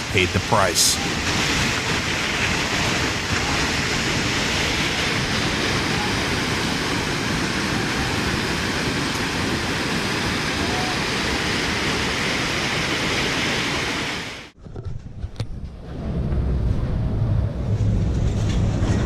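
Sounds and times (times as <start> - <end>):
river rushing: 0.0 - 14.6.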